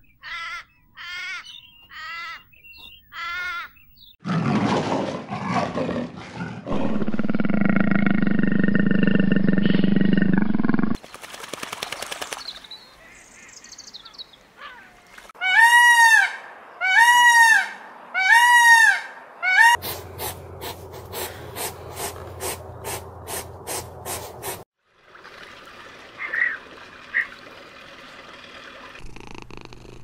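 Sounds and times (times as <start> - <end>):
big cat roaring: 4.2 - 9.6
peacock honking calls: 14.6 - 20.3.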